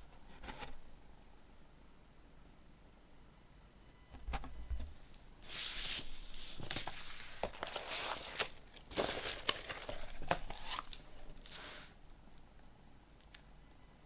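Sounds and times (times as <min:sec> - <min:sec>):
paper sleeves rustling: 0:05.4 - 0:12.0.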